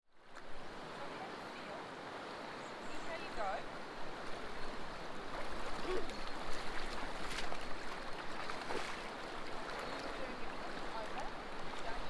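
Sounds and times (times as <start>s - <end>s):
river water rushing: 0.2s - 12.0s.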